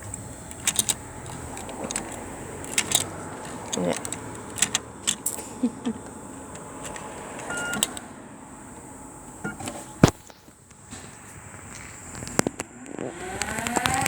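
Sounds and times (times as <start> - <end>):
sharp clicks and knocks: 0.0 - 8.0
car wash gantry high whine: 0.0 - 14.0
short beep: 7.5 - 7.8.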